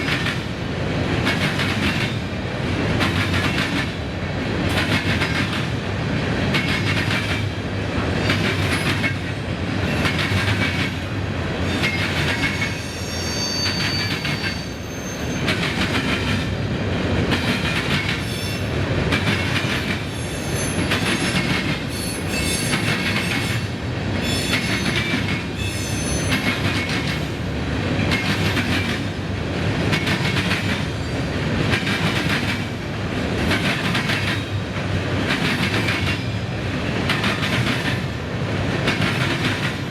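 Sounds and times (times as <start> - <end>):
train wheels clattering over rails: 0.0 - 39.9
metallic wheel squeal: 12.6 - 15.5.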